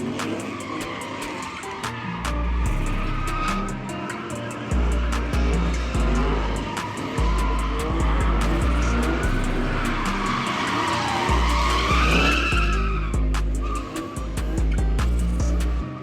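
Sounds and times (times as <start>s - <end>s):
car tyres squealing: 0.0s - 16.0s
music with heavy bass beat: 0.0s - 16.0s.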